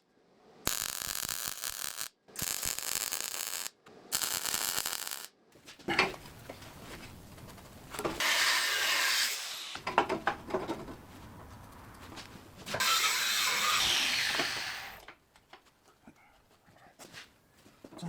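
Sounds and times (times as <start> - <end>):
angle grinder grinding steel: 12.8 - 15.0.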